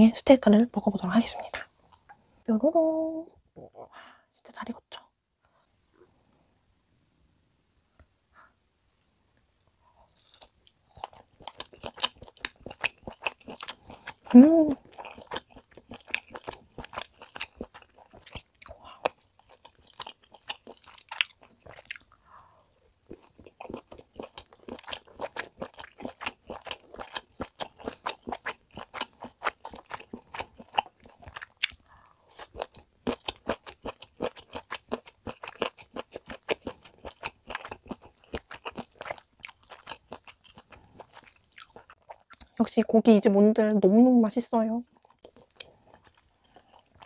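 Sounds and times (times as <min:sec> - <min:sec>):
chewing with mouth clicks: 0:10.1 - 0:22.2, 0:23.1 - 0:42.6, 0:44.9 - 0:47.0.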